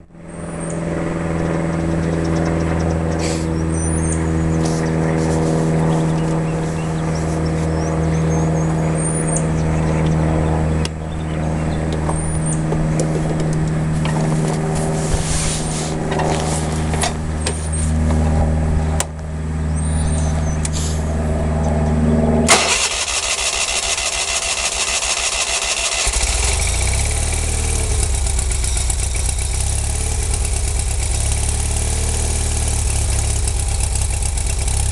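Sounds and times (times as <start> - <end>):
garden tractor engine running: 0.2 - 21.0, 21.9 - 34.9.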